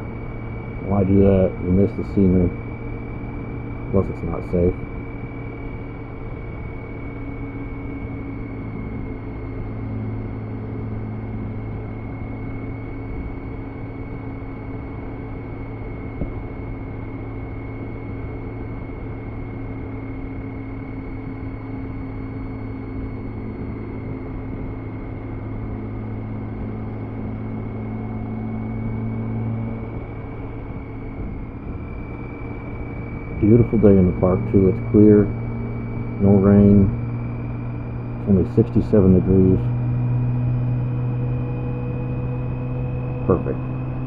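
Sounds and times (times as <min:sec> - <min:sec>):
motorcycle engine running: 0:00.0 - 0:17.2, 0:17.8 - 0:44.0
thin high whine: 0:00.0 - 0:44.0
road and wind noise: 0:22.5 - 0:44.0.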